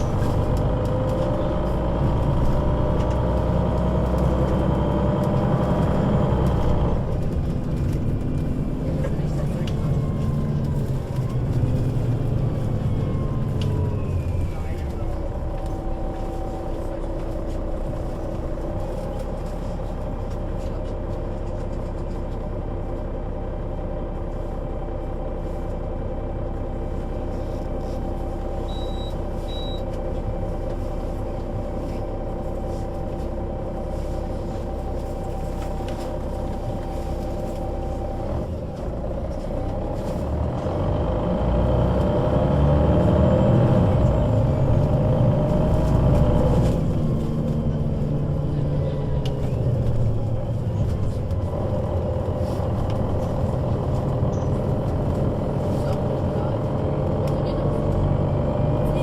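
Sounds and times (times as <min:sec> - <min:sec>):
bus engine running: 0:00.0 - 0:59.0
short high beeps: 0:28.7 - 0:29.8.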